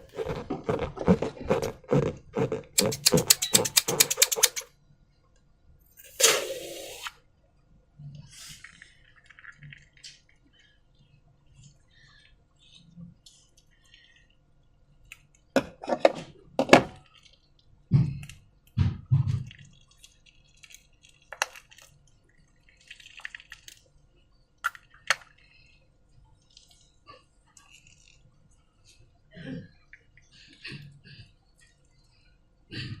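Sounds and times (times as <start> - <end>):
slime squelching: 0.0 - 4.6.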